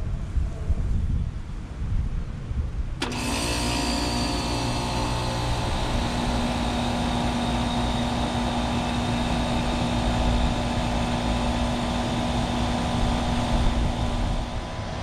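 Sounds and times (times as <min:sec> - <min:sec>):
fan whoosh of air: 0:02.5 - 0:15.0
compressor hum: 0:03.0 - 0:15.0.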